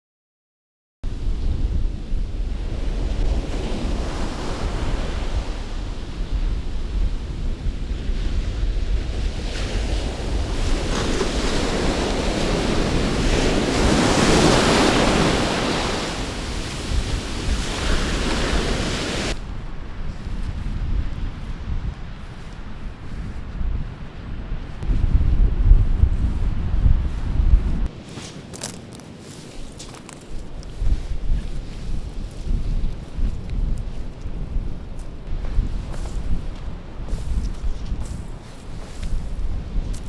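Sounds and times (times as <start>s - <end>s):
wind buffeting microphone: 1.0s - 40.0s
surf washing onto beach: 1.1s - 20.1s.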